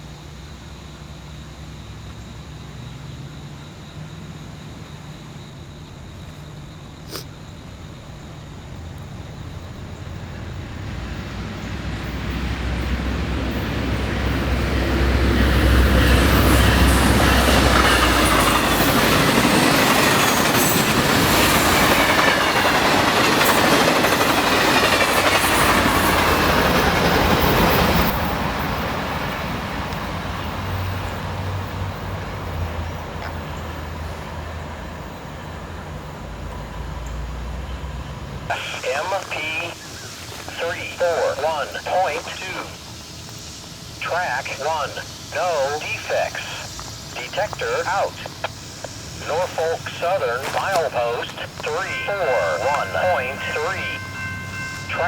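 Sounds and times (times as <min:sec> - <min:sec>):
locomotive rumble: 0:04.7 - 0:55.0
train wheels clattering on rails: 0:09.9 - 0:34.7.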